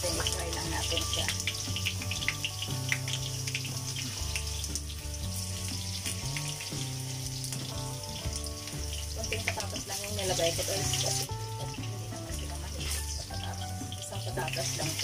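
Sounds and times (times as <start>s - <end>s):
background music low notes: 0.0s - 15.0s
potatoes sizzling in oil: 0.0s - 15.0s.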